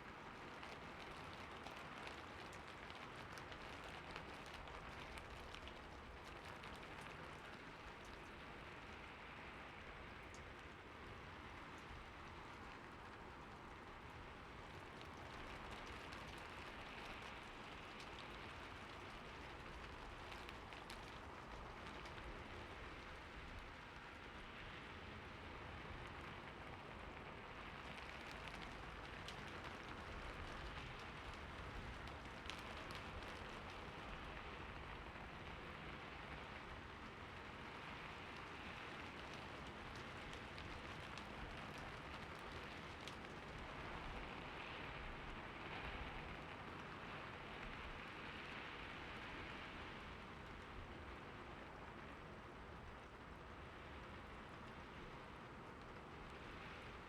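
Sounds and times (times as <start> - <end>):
steady rain falling: 0.0 - 57.0
raindrops ticking: 0.1 - 24.3, 26.0 - 45.4.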